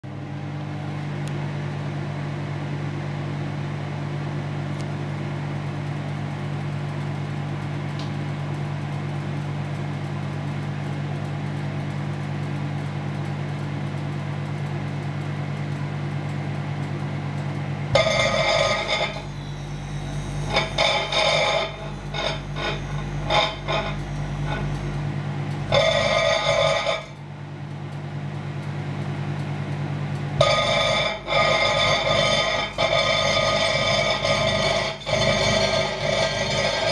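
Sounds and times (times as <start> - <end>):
microwave oven humming: 0.0 - 36.9
buzzing plasma crackle: 9.7 - 27.3, 30.2 - 36.9.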